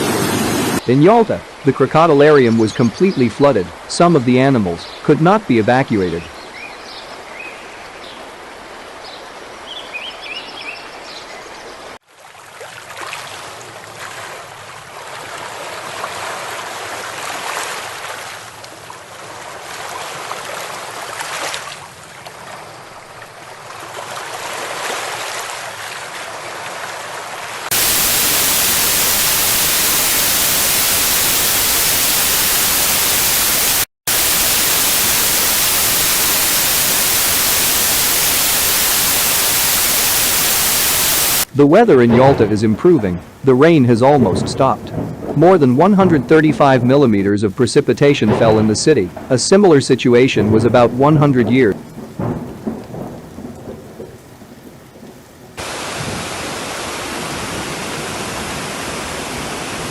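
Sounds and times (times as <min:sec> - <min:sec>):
loud even static hiss: 0:00.0 - 0:01.7, 0:27.7 - 0:44.2, 0:55.6 - 0:59.9
floodwater rushing: 0:12.0 - 0:54.6, 0:55.5 - 0:59.9.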